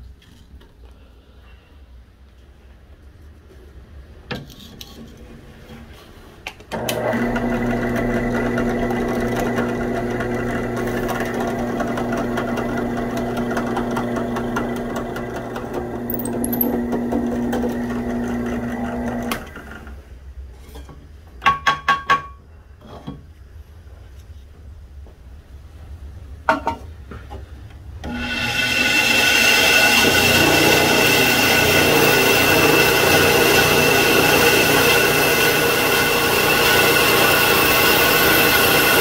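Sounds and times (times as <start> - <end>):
drill press motor droning: 6.7 - 19.8, 28.1 - 39.0.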